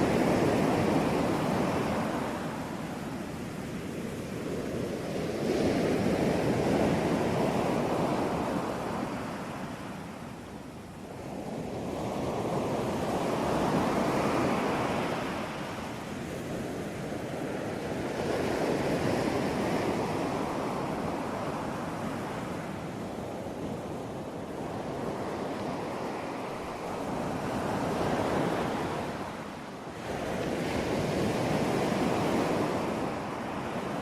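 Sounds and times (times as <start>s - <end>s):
ocean waves breaking: 0.0s - 10.4s, 11.1s - 34.0s.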